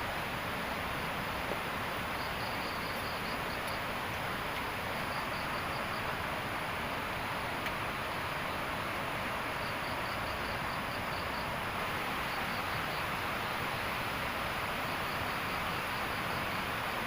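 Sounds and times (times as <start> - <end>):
steady outdoor hiss: 0.0 - 17.0
insect chirps: 2.0 - 3.9, 4.6 - 6.4, 9.5 - 17.0.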